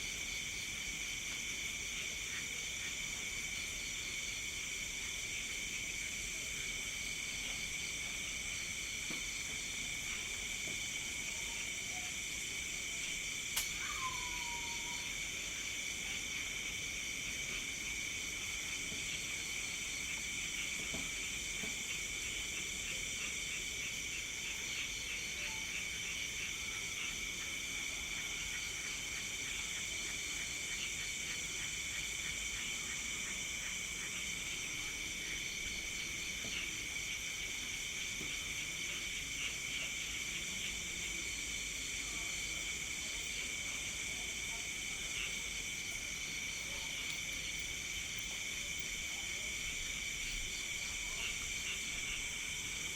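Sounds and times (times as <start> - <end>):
crickets and insects trilling: 0.0 - 52.9
sharp click: 13.6 - 13.8.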